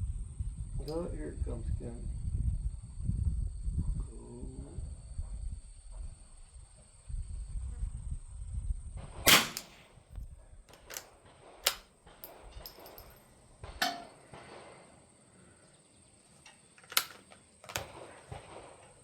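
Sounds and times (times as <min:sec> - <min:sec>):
rifle shot: 0:09.2 - 0:09.9, 0:17.7 - 0:18.8
rifle bolt clicks and knocks: 0:10.7 - 0:13.2, 0:13.8 - 0:14.1, 0:16.4 - 0:18.1.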